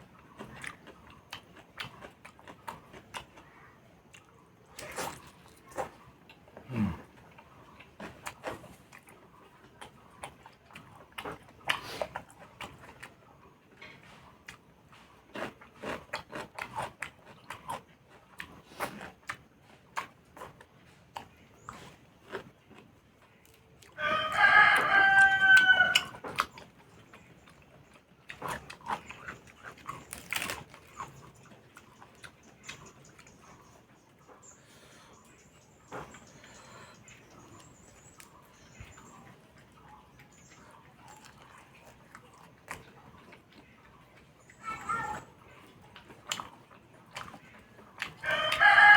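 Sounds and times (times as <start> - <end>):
person chewing food: 0.0 - 48.9
rooster crowing: 24.0 - 26.2, 48.2 - 48.9.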